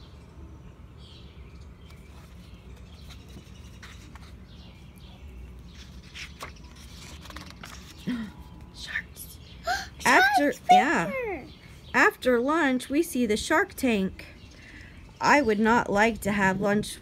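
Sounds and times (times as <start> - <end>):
book page turning: 1.9 - 4.5, 5.6 - 8.0.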